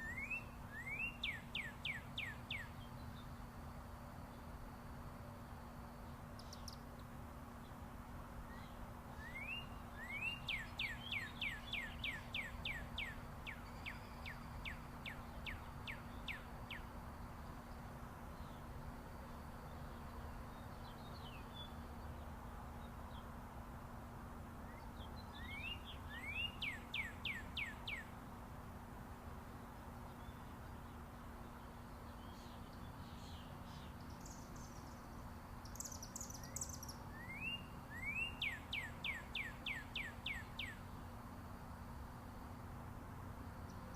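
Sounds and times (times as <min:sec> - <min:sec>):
songbird whistling: 0:00.0 - 0:02.9, 0:08.5 - 0:16.8, 0:24.7 - 0:28.1, 0:35.6 - 0:40.8
distant highway traffic rumble: 0:00.0 - 0:43.9
faint hum: 0:00.0 - 0:43.9.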